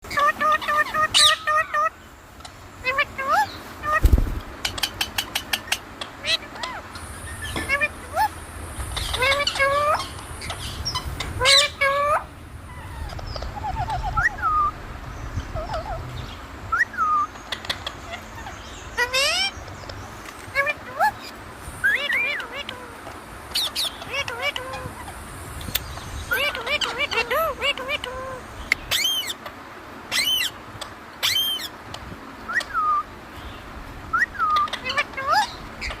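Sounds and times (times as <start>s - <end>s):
parrot squawking: 0.0s - 2.0s, 2.8s - 8.4s, 9.0s - 14.8s, 16.8s - 19.6s, 20.5s - 23.0s, 23.6s - 25.2s, 26.3s - 29.4s, 30.1s - 30.6s, 31.2s - 31.7s, 34.2s - 36.0s
parrot chatter: 0.0s - 14.8s, 17.0s - 31.8s, 34.2s - 36.0s.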